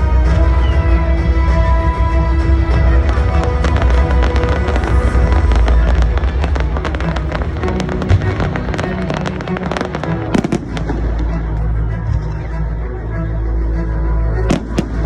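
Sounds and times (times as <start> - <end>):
music: 0.0 - 15.0
fireworks crackling and popping: 1.5 - 11.7.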